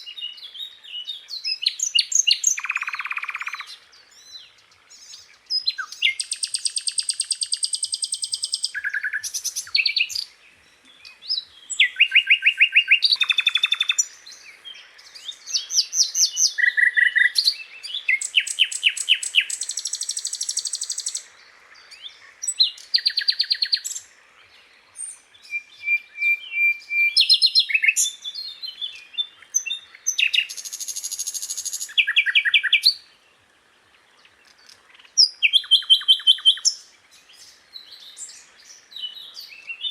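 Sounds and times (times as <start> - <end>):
bird singing high trills: 0.0 - 10.3, 11.0 - 14.2, 15.1 - 21.3, 25.0 - 33.1.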